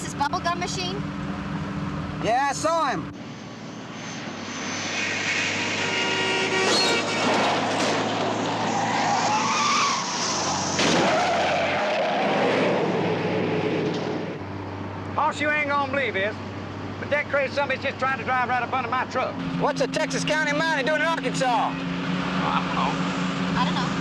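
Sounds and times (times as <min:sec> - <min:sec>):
car engines running hard: 0:00.0 - 0:24.0
tyres squealing: 0:05.8 - 0:12.4.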